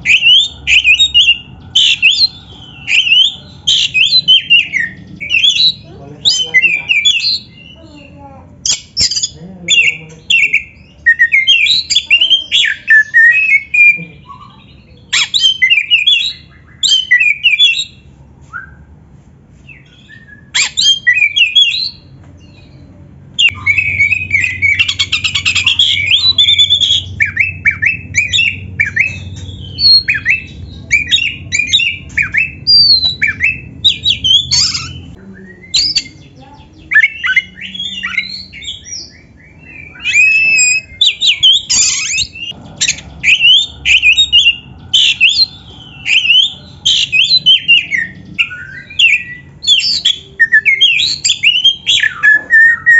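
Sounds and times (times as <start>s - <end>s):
bird singing whistled notes: 0.0s - 7.8s, 23.4s - 42.6s, 43.2s - 52.9s.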